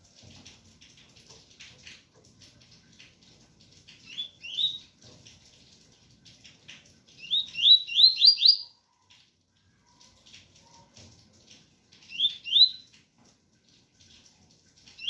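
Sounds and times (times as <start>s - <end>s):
rain: 0.0s - 15.0s
bird singing rising whistled notes: 7.2s - 8.6s, 12.1s - 12.8s.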